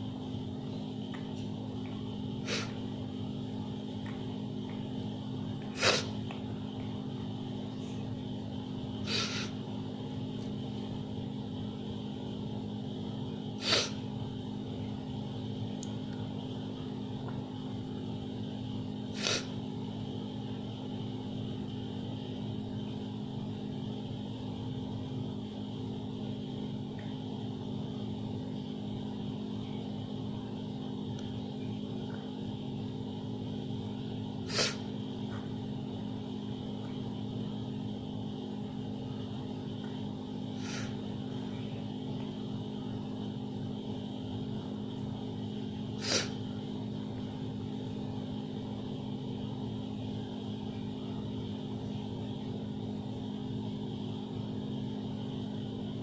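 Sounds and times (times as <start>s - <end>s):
steady hum: 0.0s - 56.0s
cat gasping: 5.8s - 6.1s, 9.1s - 9.5s, 46.0s - 46.4s.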